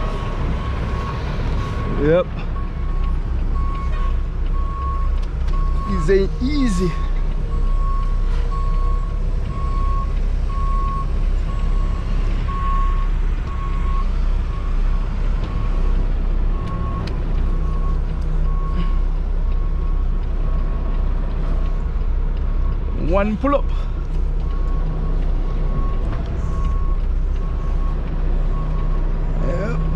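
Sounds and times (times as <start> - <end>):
truck backup alarm beeping: 0.0 - 21.8, 22.4 - 29.9
diesel engine rumble: 0.0 - 29.9.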